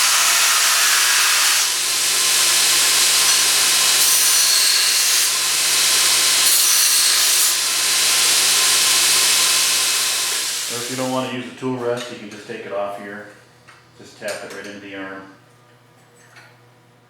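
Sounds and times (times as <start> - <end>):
belt grinder motor running: 0.0 - 11.1.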